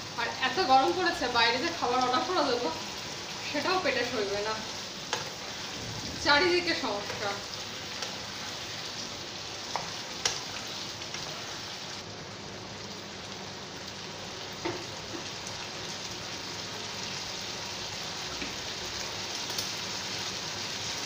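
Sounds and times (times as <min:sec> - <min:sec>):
vegetables sizzling in pan: 0:00.0 - 0:21.0.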